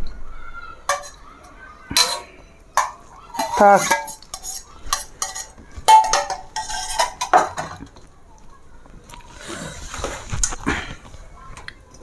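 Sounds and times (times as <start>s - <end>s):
spoon clinking on metal plates: 0.9s - 8.0s.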